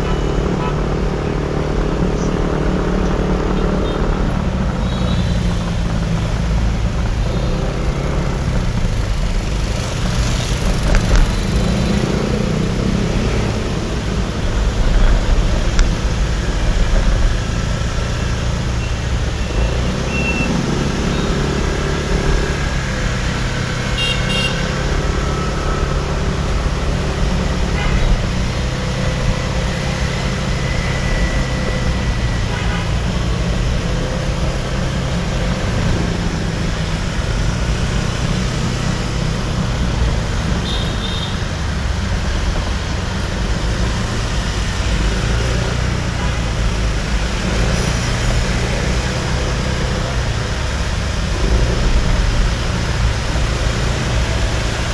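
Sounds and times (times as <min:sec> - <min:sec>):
vehicle horns tooting: 0:00.0 - 0:01.0, 0:23.8 - 0:25.8, 0:40.6 - 0:41.5
motorbike and car engines: 0:00.0 - 0:54.9
road noise: 0:00.0 - 0:54.9.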